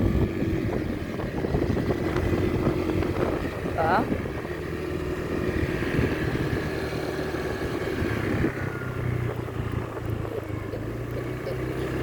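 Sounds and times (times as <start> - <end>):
motorbike engine running: 0.0 - 12.0
road noise: 0.0 - 12.0.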